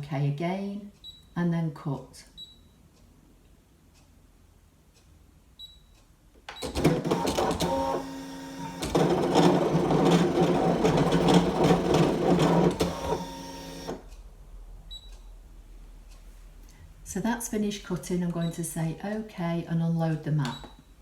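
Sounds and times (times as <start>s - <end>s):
cutting machine motors whirring: 6.6s - 14.0s.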